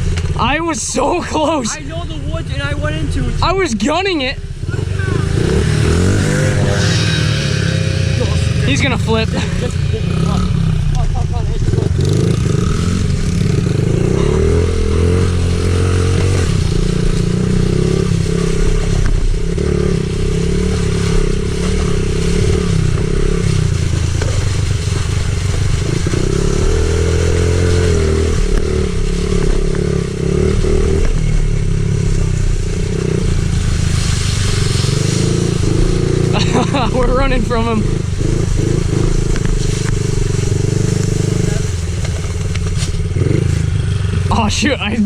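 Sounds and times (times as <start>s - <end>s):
small motorbike engine revving: 4.6s - 45.0s.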